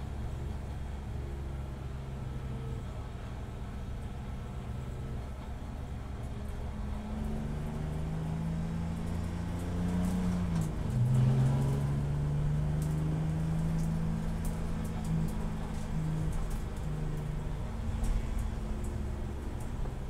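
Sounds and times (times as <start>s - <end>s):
race car engine accelerating: 7.1s - 16.9s.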